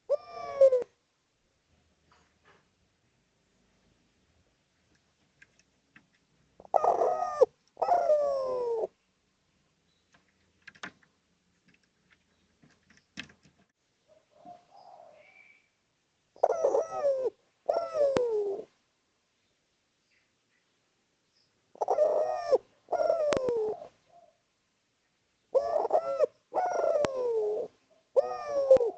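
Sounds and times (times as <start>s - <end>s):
dove cooing: 0.0s - 1.0s, 6.6s - 9.0s, 14.1s - 15.6s, 16.4s - 18.8s, 21.7s - 24.4s, 25.5s - 28.9s
faint clicks: 4.8s - 6.3s.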